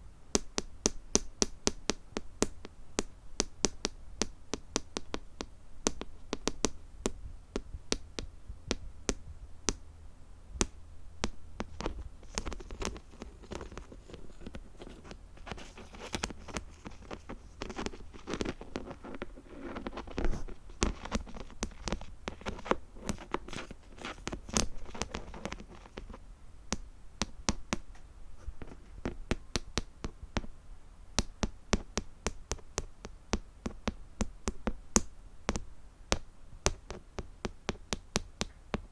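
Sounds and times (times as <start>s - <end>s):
scratching and rustling: 10.6s - 26.2s, 27.9s - 29.4s.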